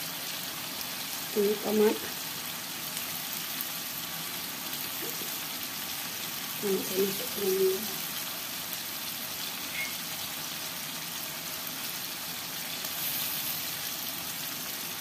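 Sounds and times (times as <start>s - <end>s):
paste sizzling in a wok: 0.0s - 15.0s.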